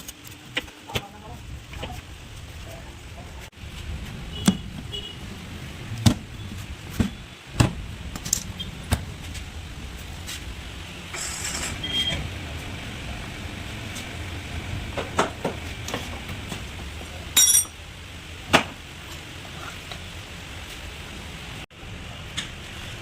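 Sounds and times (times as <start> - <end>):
metallic clinks and knocks: 17.4 - 17.8.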